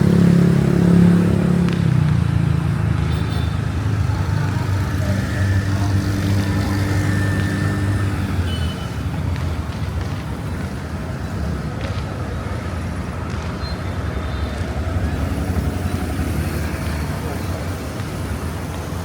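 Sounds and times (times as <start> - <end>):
vehicle engine humming: 0.0 - 12.0
street noise: 0.0 - 19.0.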